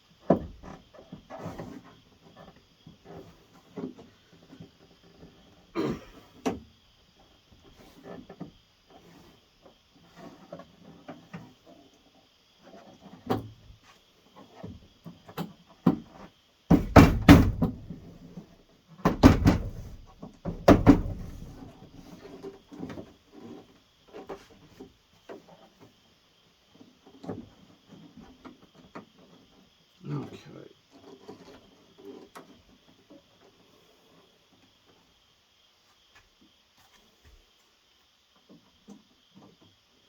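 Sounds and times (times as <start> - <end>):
gasket pushed into door knocks: 16.7 - 18.1, 19.0 - 21.6.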